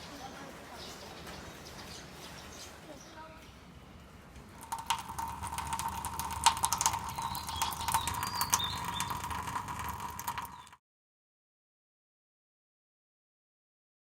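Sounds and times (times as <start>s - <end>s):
bird chirping: 0.0s - 3.6s, 6.2s - 10.8s
rain drops ticking on hard surface: 4.3s - 10.8s.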